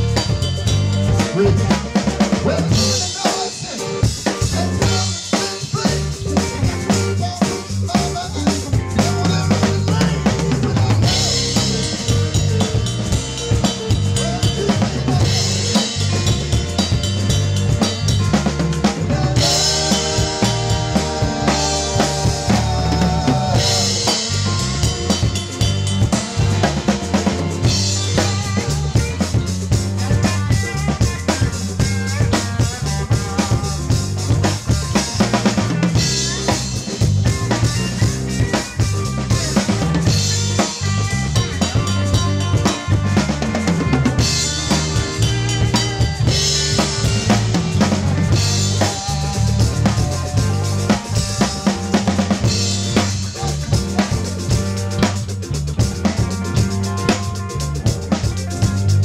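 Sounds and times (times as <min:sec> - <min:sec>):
bass drum and snare backbeat: 0:00.0 - 0:59.0
rock band playing: 0:00.0 - 0:59.0.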